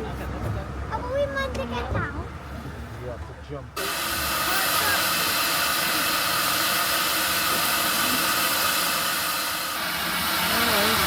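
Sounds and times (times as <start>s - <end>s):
steam hissing from locomotive: 3.8s - 11.0s.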